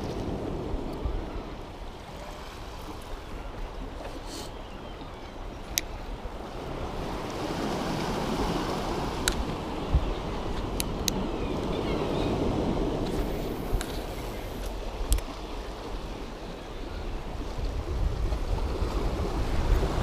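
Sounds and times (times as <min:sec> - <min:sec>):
surf washing on shore: 0:00.0 - 0:20.0
wind on microphone: 0:05.4 - 0:20.0.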